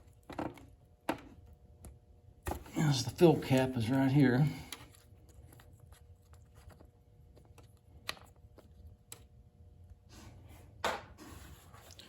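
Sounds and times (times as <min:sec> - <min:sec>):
handling noise with light clicks: 0:04.7 - 0:10.0.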